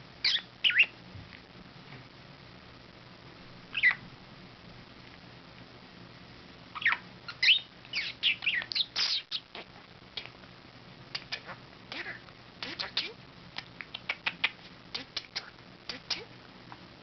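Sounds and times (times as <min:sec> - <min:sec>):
budgerigar chirping: 0:00.2 - 0:01.0, 0:03.7 - 0:04.0, 0:06.8 - 0:09.7.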